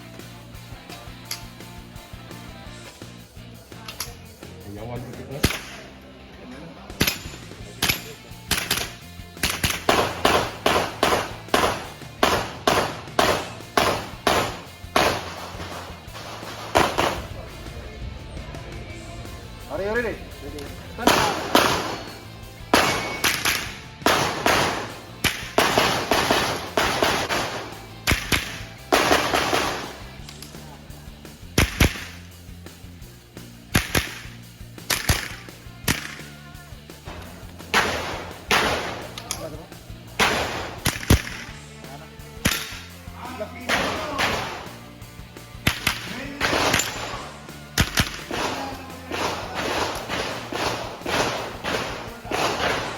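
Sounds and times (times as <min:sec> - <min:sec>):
rifle shots: 0:05.4 - 0:05.9, 0:07.0 - 0:17.8, 0:20.4 - 0:30.5, 0:31.6 - 0:32.2, 0:33.7 - 0:36.3, 0:37.1 - 0:39.5, 0:40.1 - 0:41.6, 0:42.4 - 0:43.0, 0:43.6 - 0:44.8, 0:45.5 - 0:52.9.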